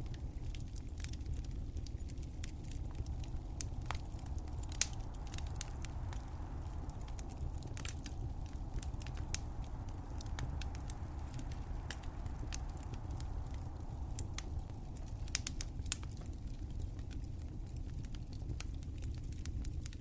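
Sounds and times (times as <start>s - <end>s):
low rumble of flames: 0.0s - 20.0s
wood fire crackling and popping: 0.0s - 20.0s.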